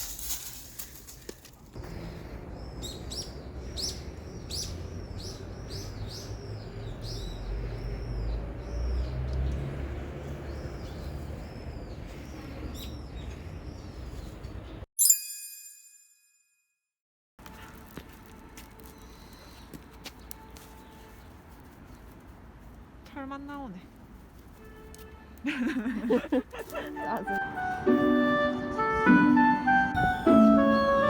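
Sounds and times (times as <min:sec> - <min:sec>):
bird chirping: 0:01.9 - 0:09.6.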